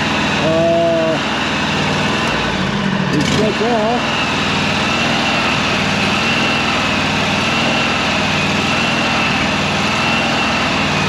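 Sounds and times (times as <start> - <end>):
mower engine idling: 0.0 - 11.0
steady high whine: 0.0 - 11.0.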